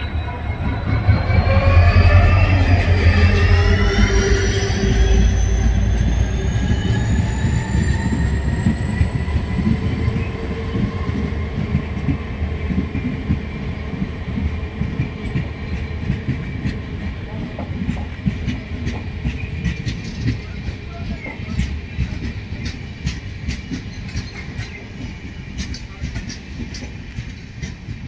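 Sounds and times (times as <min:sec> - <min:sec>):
high wheel squeal: 0:00.0 - 0:11.6
train wheels rumbling: 0:00.0 - 0:28.0.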